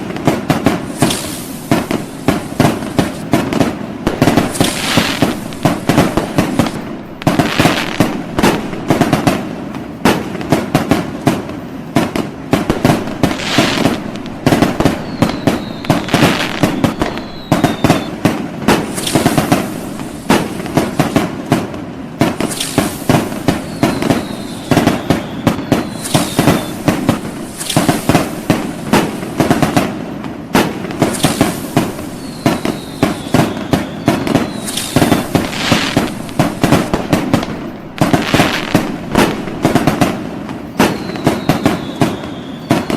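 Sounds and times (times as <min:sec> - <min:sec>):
fireworks cracks and bangs: 0:00.0 - 0:42.9
fireworks hissing bursts: 0:00.0 - 0:42.9
thin falling whistle: 0:00.9 - 0:03.2, 0:04.2 - 0:08.9, 0:12.7 - 0:18.2, 0:18.8 - 0:21.2, 0:22.4 - 0:28.8, 0:31.0 - 0:40.1, 0:40.7 - 0:42.9.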